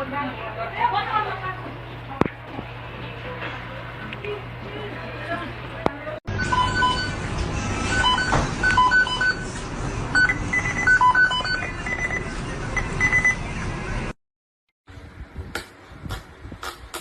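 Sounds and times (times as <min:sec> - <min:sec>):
electronic beeping tune: 0:06.3 - 0:07.2, 0:07.8 - 0:09.4, 0:10.1 - 0:13.4.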